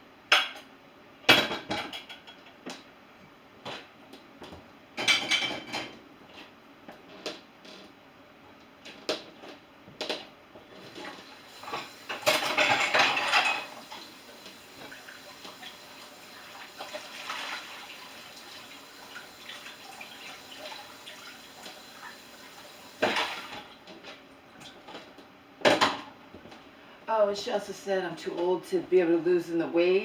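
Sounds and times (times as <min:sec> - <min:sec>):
water running from tap: 0:10.9 - 0:23.7
dishes and cutlery clinking: 0:11.7 - 0:13.8.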